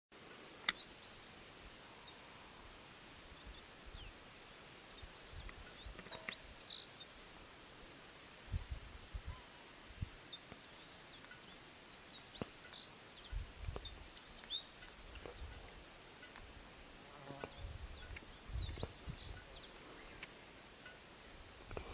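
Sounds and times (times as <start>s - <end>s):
steady hiss: 0.1s - 21.9s
bird chirps: 10.2s - 15.6s, 17.5s - 20.3s.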